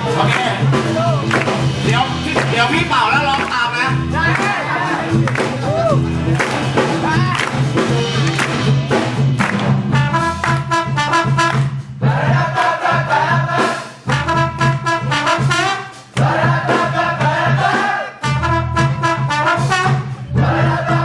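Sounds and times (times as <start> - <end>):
bass line: 0.0 - 21.0
brass chords: 0.0 - 21.0
drums: 0.0 - 21.0.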